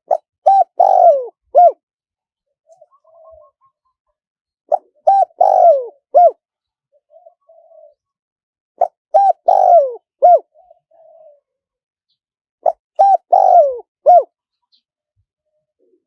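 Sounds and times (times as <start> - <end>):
dove cooing: 0.1 - 1.8, 2.6 - 3.9, 4.7 - 8.1, 8.8 - 11.6, 12.6 - 14.4, 15.8 - 16.0.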